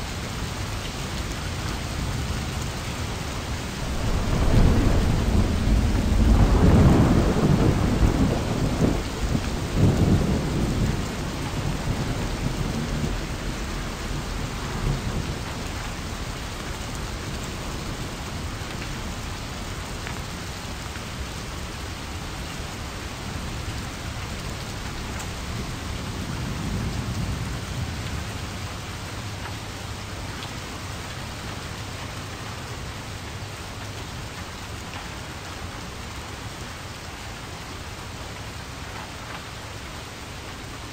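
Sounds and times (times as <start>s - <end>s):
steady rain: 0.0s - 40.9s
thunder rolling: 3.5s - 13.2s.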